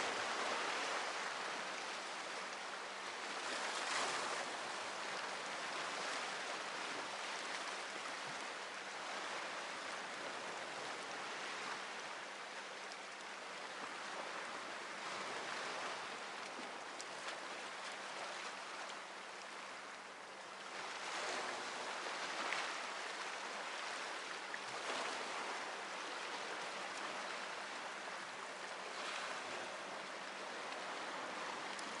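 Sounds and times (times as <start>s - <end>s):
sea waves washing on shore: 0.0s - 32.0s.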